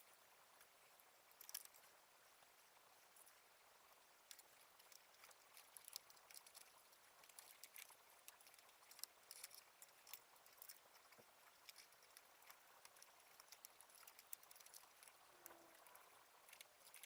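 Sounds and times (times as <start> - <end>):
low hiss: 0.0 - 17.0
light clicks and taps: 1.3 - 1.9, 4.2 - 17.0.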